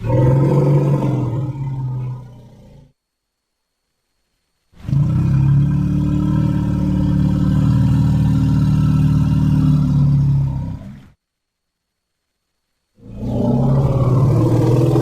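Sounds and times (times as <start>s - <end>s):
long low rough roar: 0.0s - 2.9s, 4.8s - 11.2s, 13.0s - 15.0s.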